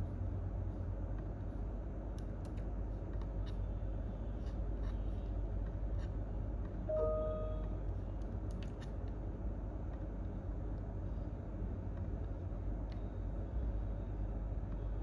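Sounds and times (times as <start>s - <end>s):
low room hum: 0.0s - 15.0s
brief pitched tone: 6.9s - 7.7s.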